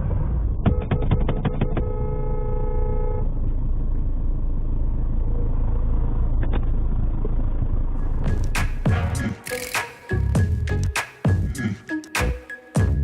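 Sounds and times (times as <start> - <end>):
car driving rumble: 0.0 - 9.4
car horn: 0.6 - 3.4.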